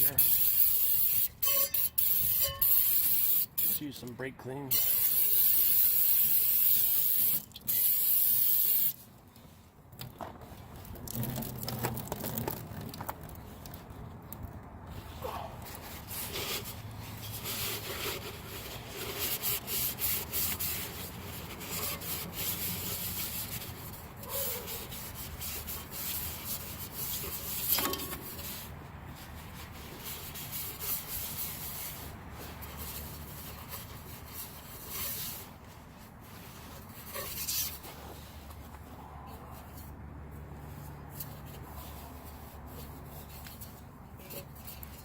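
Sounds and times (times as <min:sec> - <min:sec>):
rubbing and scrubbing parts: 0:14.9 - 0:45.0.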